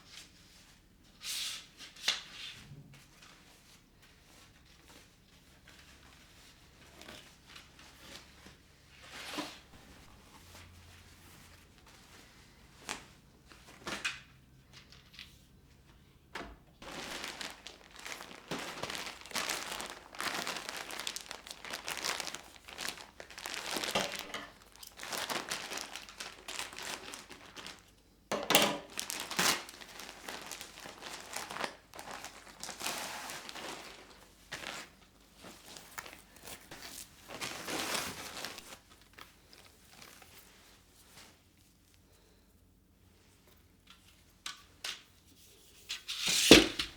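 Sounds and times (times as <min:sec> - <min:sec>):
packaging crinkling: 0:16.8 - 0:27.9, 0:28.8 - 0:40.4.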